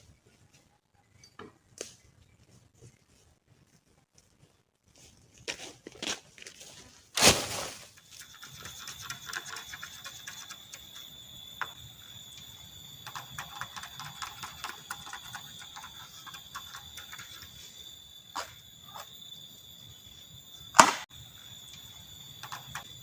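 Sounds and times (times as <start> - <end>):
insects droning: 6.8 - 23.0
small ticks and crackles: 8.0 - 17.6.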